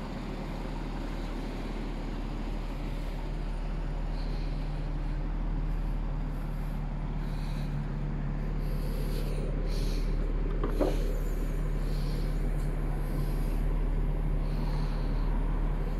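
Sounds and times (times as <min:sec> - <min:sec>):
car engine idling: 0:00.0 - 0:15.9
short clunk: 0:10.5 - 0:11.1.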